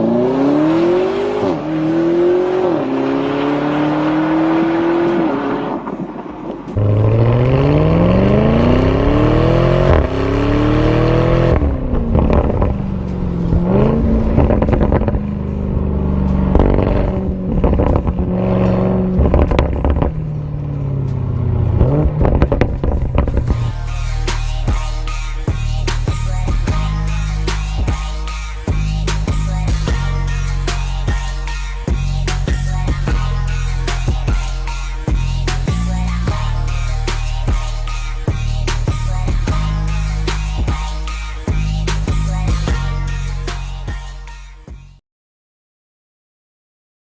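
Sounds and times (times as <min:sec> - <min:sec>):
car engine accelerating hard: 0:00.0 - 0:27.2
exhaust crackling pops: 0:21.8 - 0:23.6.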